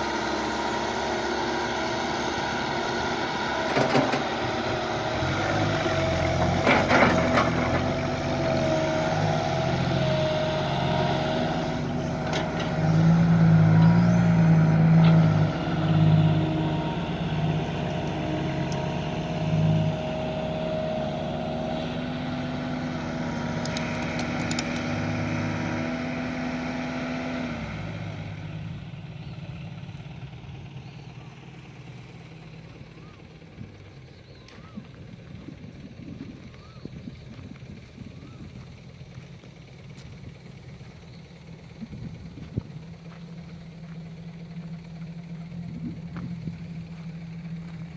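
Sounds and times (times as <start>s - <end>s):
excavator digging and loading soil: 0.0s - 28.8s
excavator diesel engine under load: 0.0s - 47.9s.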